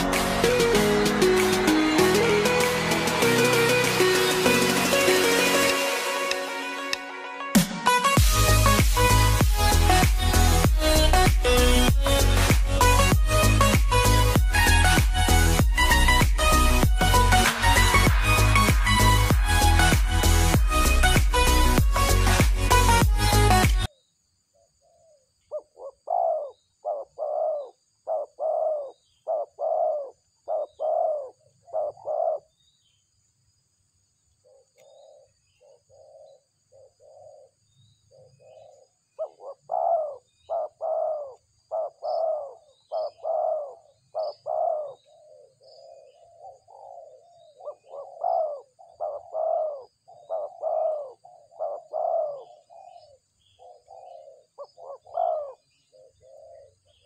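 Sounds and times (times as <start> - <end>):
small birds chirping: 8.2 - 57.0
doves cooing: 25.5 - 32.5, 38.2 - 57.0.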